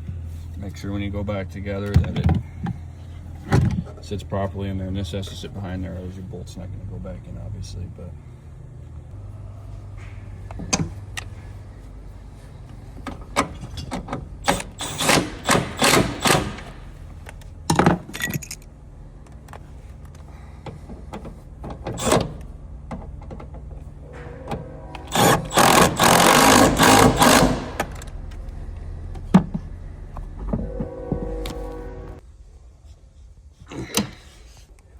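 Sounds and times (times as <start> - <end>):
metal parts and tools rattling: 13.0 - 18.7
metal scraping: 23.8 - 32.2.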